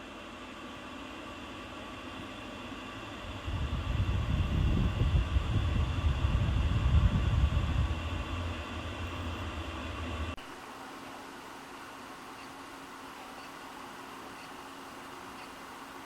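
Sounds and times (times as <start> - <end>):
fan whirring: 0.0 - 16.0
wind buffeting microphone: 3.3 - 10.4.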